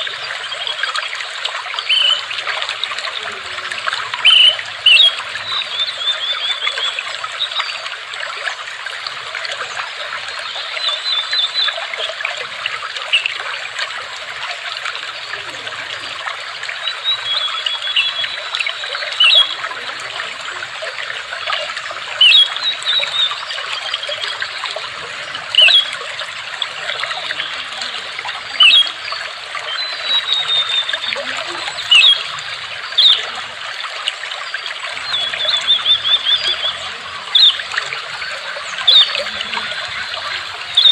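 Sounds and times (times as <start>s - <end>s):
water trickling and babbling: 0.0s - 40.9s
small birds chirping: 22.2s - 33.7s, 34.4s - 40.9s.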